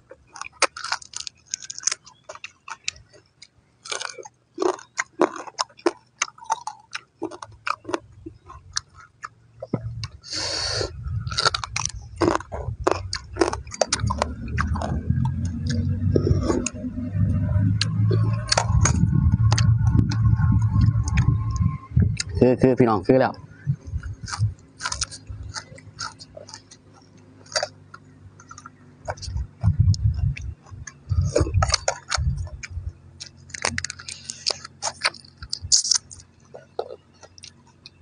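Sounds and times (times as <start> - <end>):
person chewing wet food: 0.0 - 22.4, 23.6 - 38.0
low rumble: 9.4 - 37.2.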